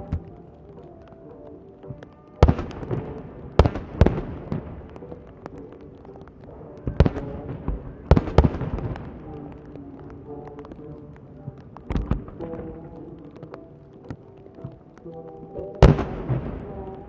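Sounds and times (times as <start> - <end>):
fireworks bangs with crackle: 2.0 - 13.2, 15.8 - 17.0.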